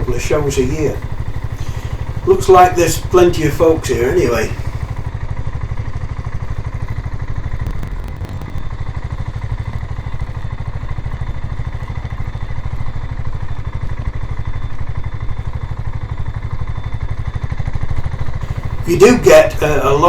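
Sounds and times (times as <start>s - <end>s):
motorcycle engine at low speed: 0.0s - 20.0s.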